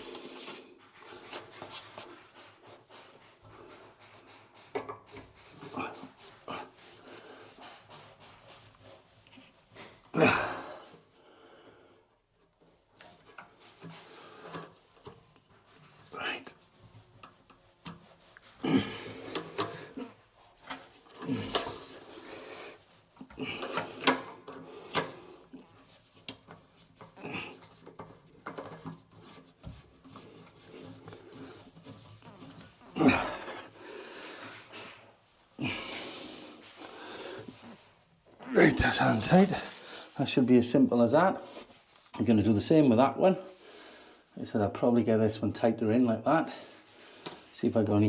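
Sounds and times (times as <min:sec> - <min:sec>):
pipe fitting scraping by hand: 0:00.0 - 0:10.0, 0:12.5 - 0:40.2.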